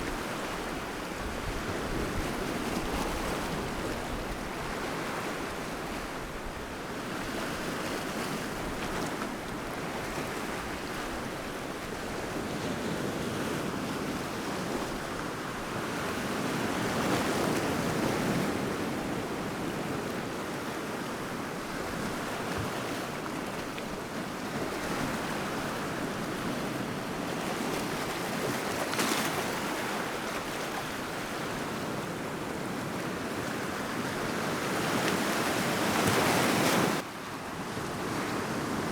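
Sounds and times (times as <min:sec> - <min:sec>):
waves washing onto shore: 0:15.0 - 0:38.9.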